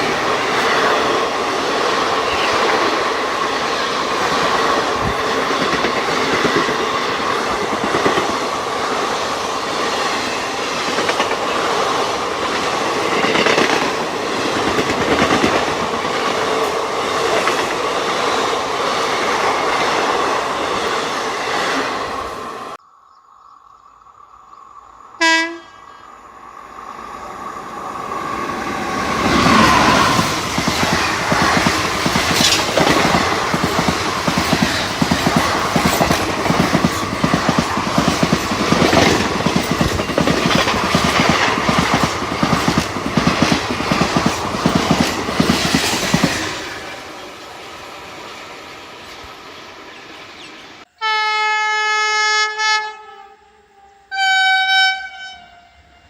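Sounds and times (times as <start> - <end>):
locomotive horn: 25.2 - 25.9, 51.0 - 56.0
train wheels clattering: 28.6 - 47.0.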